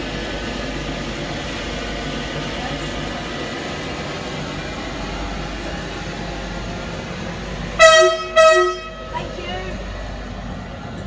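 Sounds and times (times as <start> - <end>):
train rumbling past: 0.0 - 11.0
train horn blast: 7.8 - 9.4.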